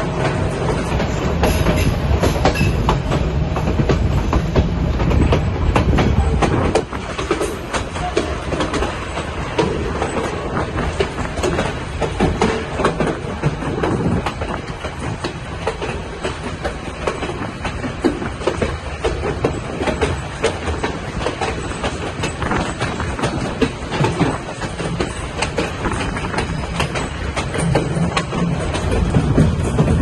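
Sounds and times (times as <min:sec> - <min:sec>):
train cars rumbling: 0:00.0 - 0:30.0
wheels clacking over track: 0:00.0 - 0:30.0.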